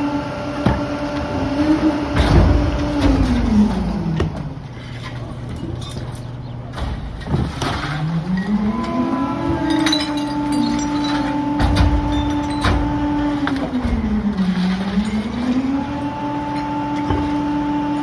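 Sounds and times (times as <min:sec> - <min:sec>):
garbage truck engine revving: 0:00.0 - 0:18.0
debris knocking and cracking: 0:09.6 - 0:15.7.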